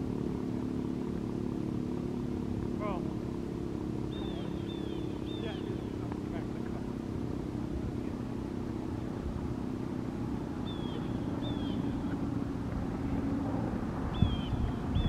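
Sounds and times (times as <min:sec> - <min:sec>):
faint hum: 0:00.0 - 0:15.0
low steady rumble: 0:00.0 - 0:15.0
small bird chirping: 0:04.0 - 0:06.5, 0:10.6 - 0:12.4, 0:14.1 - 0:15.0.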